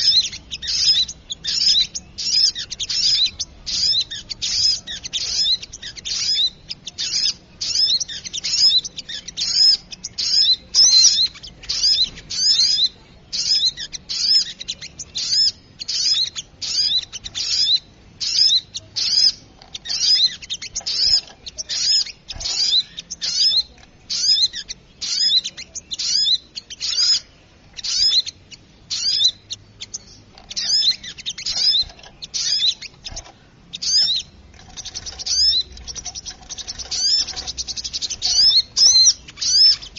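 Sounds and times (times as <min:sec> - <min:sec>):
bird high sharp chirping: 0:00.0 - 0:39.9.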